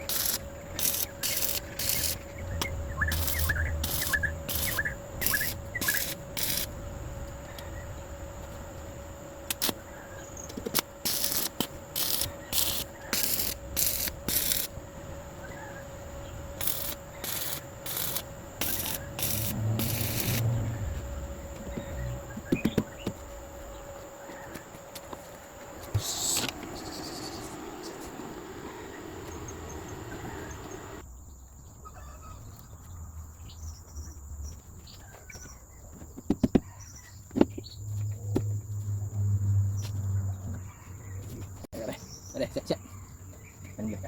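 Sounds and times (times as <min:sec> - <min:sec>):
insect drone: 0:00.0 - 0:34.6, 0:35.4 - 0:44.0.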